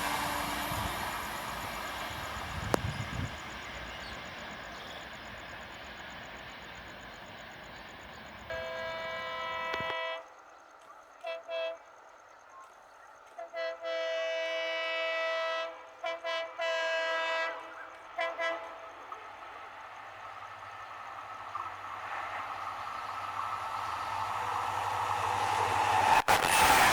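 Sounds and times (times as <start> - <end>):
locomotive air horn: 8.5 - 10.3, 11.2 - 12.0, 13.3 - 19.2.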